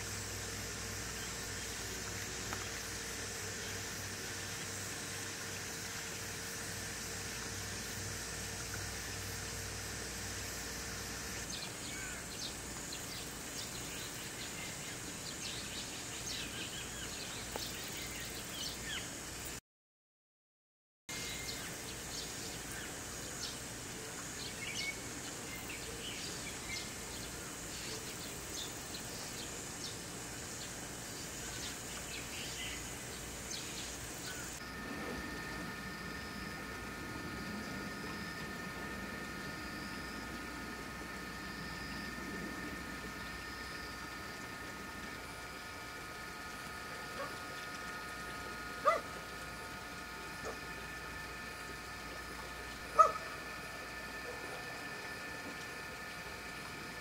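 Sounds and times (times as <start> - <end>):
steady hiss: 0.0 - 19.6, 21.1 - 57.0
birds chirping: 21.1 - 34.6, 48.8 - 49.1, 52.9 - 53.3.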